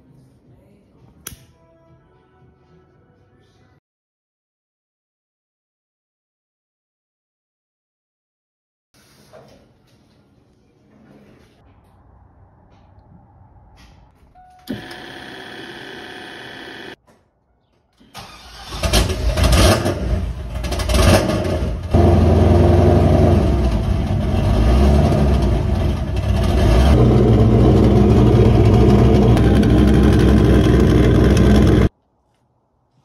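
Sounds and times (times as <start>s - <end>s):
electric pump whining: 14.6s - 17.0s, 26.9s - 31.9s
engine cranking and idling loudly: 18.2s - 31.9s.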